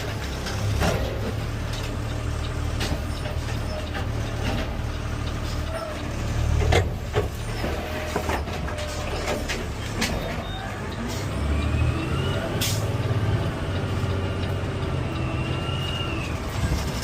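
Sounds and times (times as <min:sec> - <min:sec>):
clunks and knocks: 0:00.0 - 0:10.5
garbage truck engine rumbling: 0:00.0 - 0:17.0.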